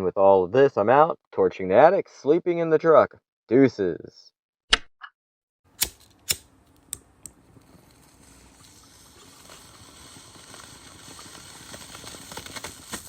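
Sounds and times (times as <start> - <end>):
rushing noise with crackles: 7.4 - 13.0.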